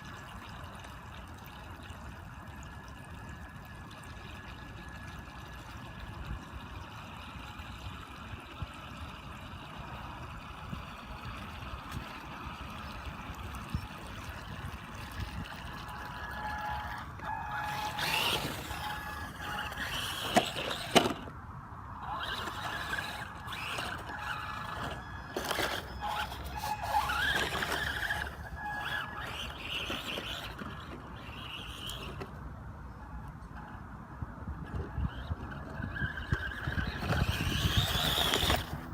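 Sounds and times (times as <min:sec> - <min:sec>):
electric motor whine: 0:07.1 - 0:21.3, 0:22.0 - 0:32.4, 0:34.5 - 0:38.9.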